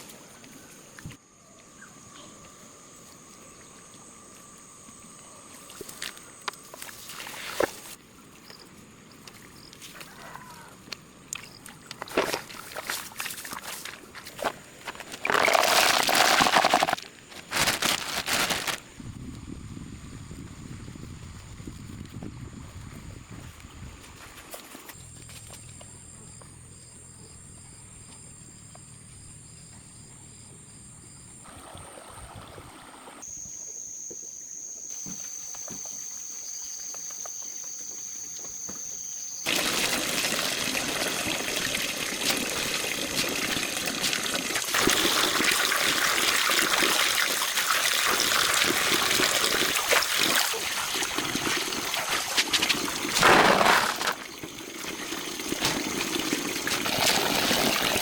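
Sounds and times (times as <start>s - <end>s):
water trickling and splashing: 11.4s - 18.8s, 31.4s - 33.2s, 39.4s - 58.0s.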